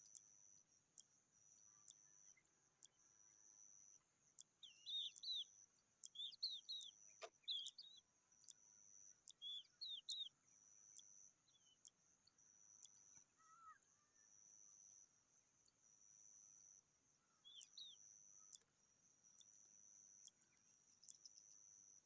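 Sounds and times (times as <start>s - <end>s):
birds chirping: 4.4s - 10.5s, 17.3s - 18.6s.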